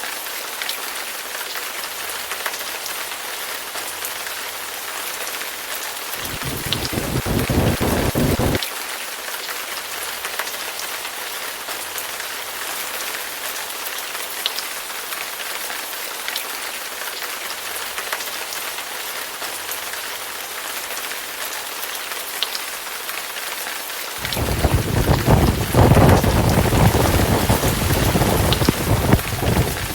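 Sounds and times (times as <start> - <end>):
heavy rain falling: 5.9 - 8.6, 24.2 - 29.9
raindrops clicking: 24.2 - 29.9.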